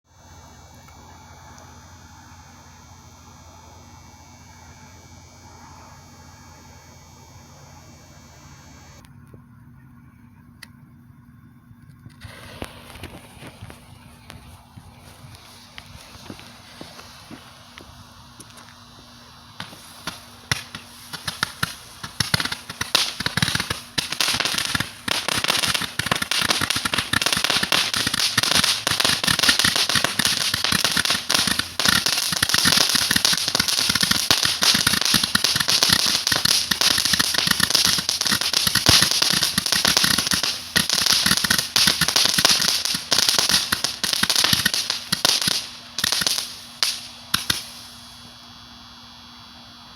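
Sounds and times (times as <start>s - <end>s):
hissing crackle: 12.1s - 49.9s
firework barrage popping: 12.2s - 48.3s.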